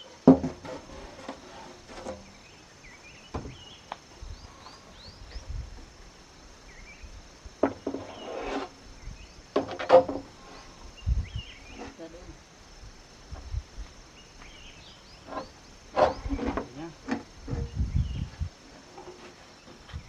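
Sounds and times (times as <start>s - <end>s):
high insect buzz: 0.1s - 20.0s
wood knocking: 0.2s - 2.3s, 3.3s - 3.7s, 7.6s - 8.1s, 9.5s - 10.3s.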